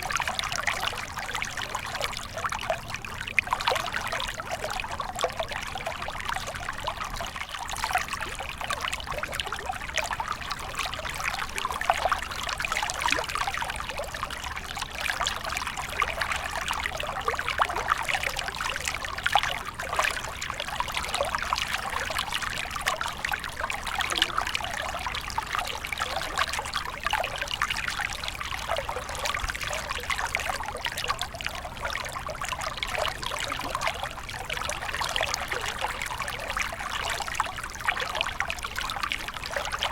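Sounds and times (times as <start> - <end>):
stream trickling over stones: 0.0 - 39.9.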